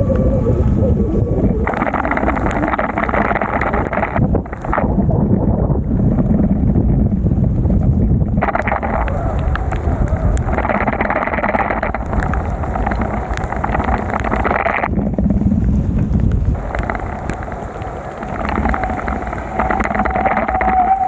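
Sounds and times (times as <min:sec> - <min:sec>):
rain spattering on microphone: 0:00.0 - 0:21.0
wind rumble: 0:00.0 - 0:21.0
wet road and traffic noise: 0:11.8 - 0:20.9.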